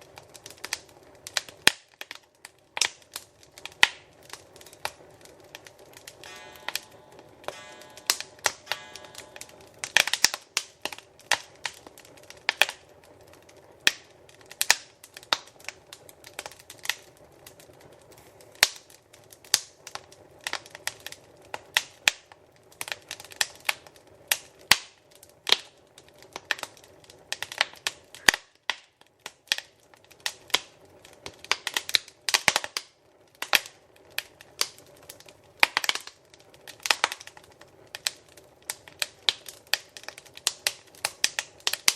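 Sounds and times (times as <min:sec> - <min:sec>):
fire crackling and popping: 0:00.0 - 0:41.9
faint steady rush: 0:06.2 - 0:10.1.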